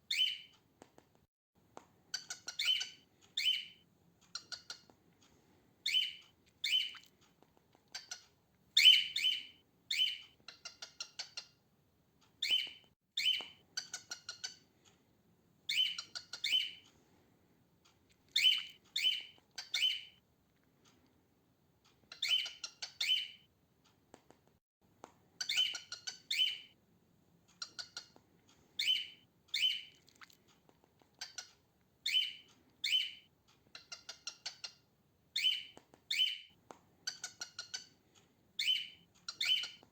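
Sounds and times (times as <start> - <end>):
cockatiel chirping: 0.1 - 0.5, 2.1 - 4.9, 5.8 - 7.1, 7.7 - 11.6, 12.4 - 14.7, 15.7 - 16.8, 18.3 - 20.2, 22.0 - 23.5, 25.4 - 26.8, 27.6 - 28.2, 28.8 - 30.0, 31.2 - 38.0, 38.6 - 39.9.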